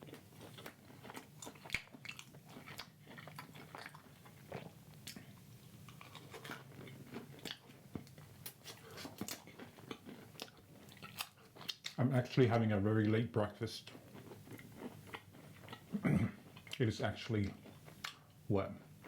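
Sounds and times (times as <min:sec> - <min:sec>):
person chewing food: 0:00.0 - 0:12.0, 0:13.8 - 0:16.8, 0:17.4 - 0:19.0.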